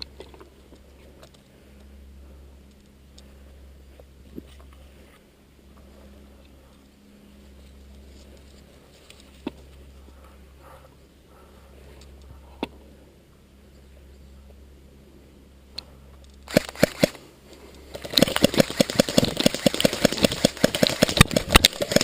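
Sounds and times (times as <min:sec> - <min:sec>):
airsoft gun firing: 0:16.5 - 0:17.2, 0:18.0 - 0:22.0.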